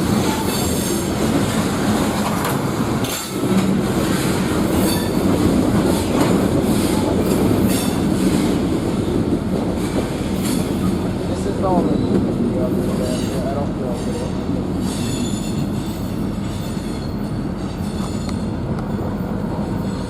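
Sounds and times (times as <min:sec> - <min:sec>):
railcars rumbling: 0:00.0 - 0:20.0
train wheel clacking: 0:00.0 - 0:20.0.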